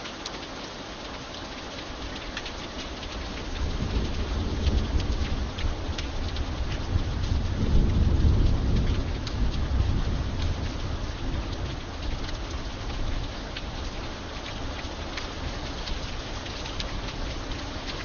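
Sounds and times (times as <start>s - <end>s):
raindrops ticking: 0.0s - 18.0s
steady rain: 0.0s - 18.0s
low thunder rumble: 3.3s - 14.0s.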